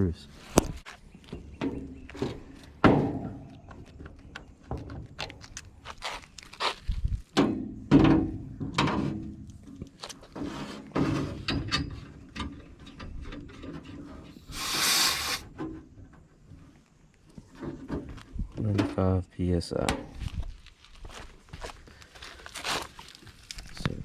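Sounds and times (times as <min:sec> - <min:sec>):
short loud gas hiss: 0:14.4 - 0:15.5.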